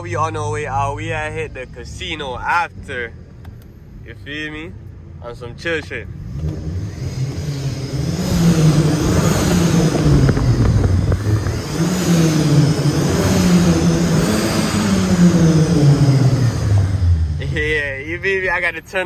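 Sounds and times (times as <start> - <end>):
sports car engine accelerating: 6.0 - 18.6.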